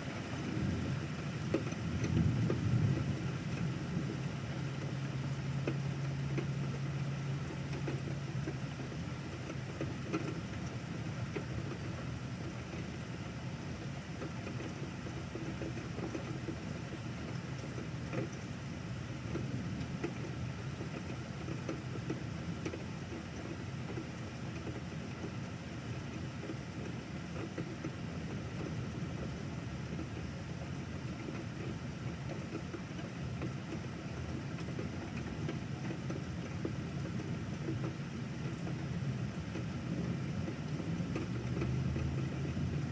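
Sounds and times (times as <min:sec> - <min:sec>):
steady rain falling: 0:00.0 - 0:42.9
low engine-like hum: 0:26.6 - 0:42.9.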